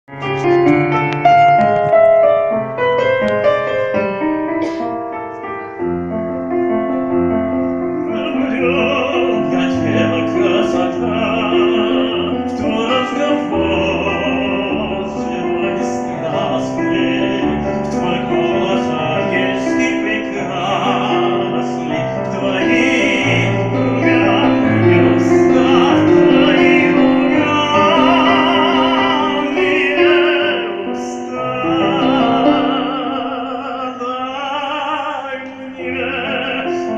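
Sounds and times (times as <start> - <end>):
piano accompaniment: 0.0 - 36.9
person singing operatically: 8.0 - 36.9.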